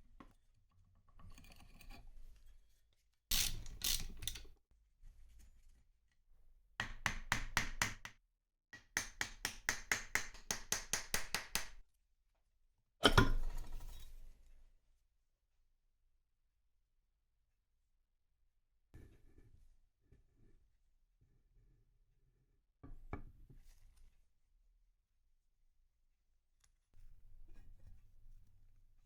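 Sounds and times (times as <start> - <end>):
hammer tapping: 8.8 - 11.8.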